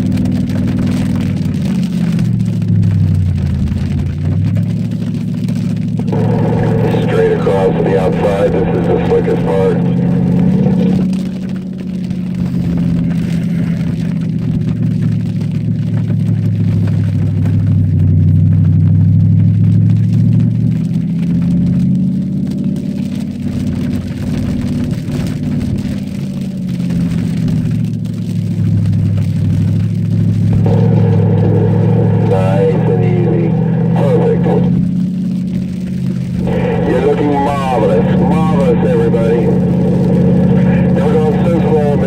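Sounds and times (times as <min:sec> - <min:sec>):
car engine at part throttle: 0:00.0 - 0:42.0
tyres hissing on wet road: 0:00.0 - 0:42.0.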